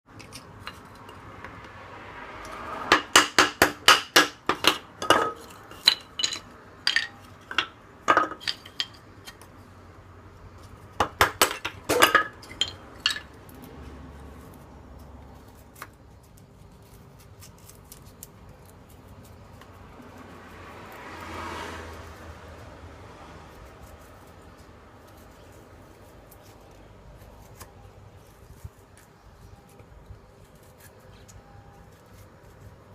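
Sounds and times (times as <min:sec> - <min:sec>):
light metal pieces clinking: 0:04.6 - 0:09.4, 0:11.5 - 0:13.4.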